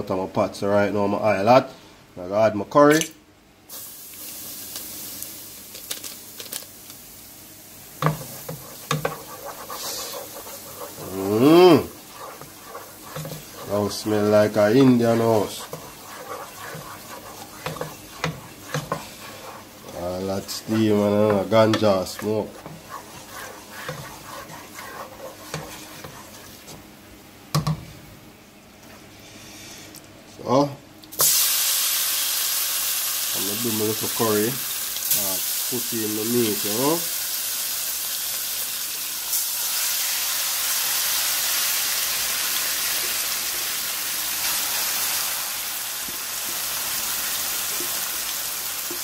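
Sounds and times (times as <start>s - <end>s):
spices sizzling in hot oil: 3.7s - 26.8s, 31.1s - 49.0s
wooden spoon scraping pot: 8.0s - 26.8s.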